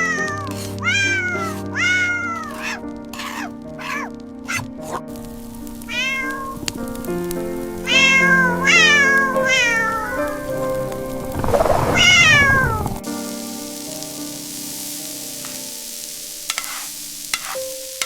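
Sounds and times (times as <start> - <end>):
cat meowing: 0.0 - 5.0, 5.8 - 6.7, 7.8 - 10.4, 12.0 - 12.8
background music: 0.0 - 18.0.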